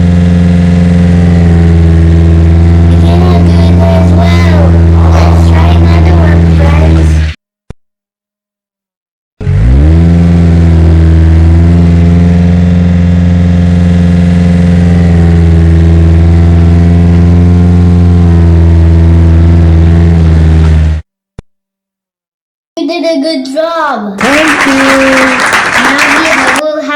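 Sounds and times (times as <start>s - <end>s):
toy bulldozer engine rumble: 0.0s - 7.3s.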